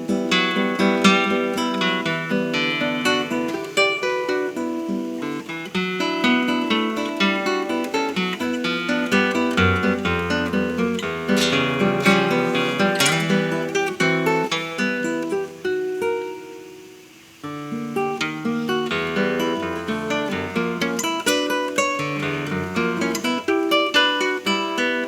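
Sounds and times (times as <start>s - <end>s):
acoustic classical guitar tango: 0.0s - 25.0s.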